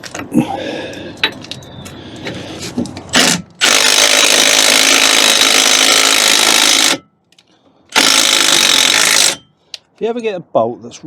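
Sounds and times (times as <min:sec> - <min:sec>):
power tool driving bolt: 0:03.1 - 0:07.0, 0:07.9 - 0:09.4.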